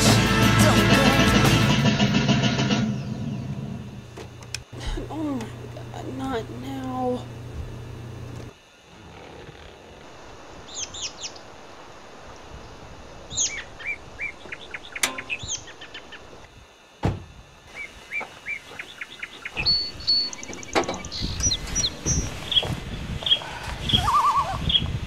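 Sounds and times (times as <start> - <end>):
small birds chirping: 10.6 - 11.5, 13.3 - 16.5, 17.7 - 25.0
sharp click: 15.0 - 15.4
thump: 17.0 - 17.3.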